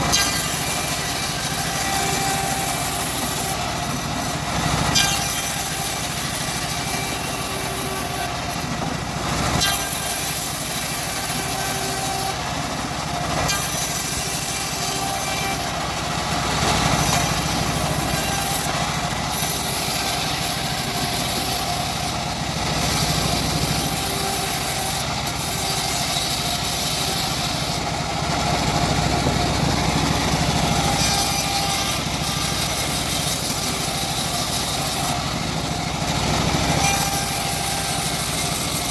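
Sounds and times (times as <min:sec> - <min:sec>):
bandsaw mill engine running: 0:00.0 - 0:38.9
blade sawing through log: 0:00.0 - 0:38.9.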